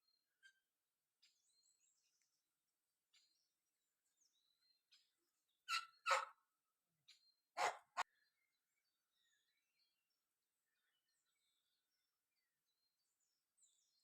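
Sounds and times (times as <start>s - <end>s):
faint bird chirps: 0.0s - 14.0s
dog barking: 6.0s - 6.4s, 7.6s - 8.0s.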